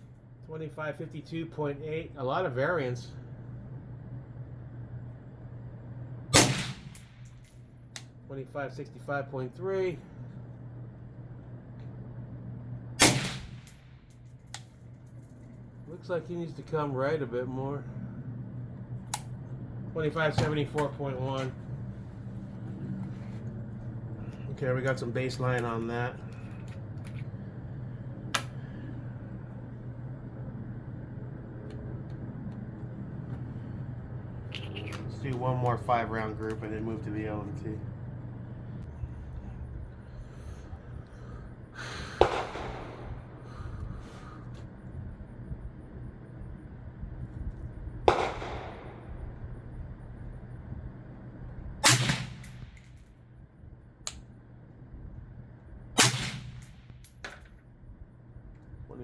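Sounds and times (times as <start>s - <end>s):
low mechanical hum: 0.0s - 59.0s
suppressed rifle shots: 6.4s - 7.1s, 13.0s - 13.8s, 42.2s - 43.3s, 48.1s - 49.2s, 51.8s - 52.6s, 56.0s - 56.8s.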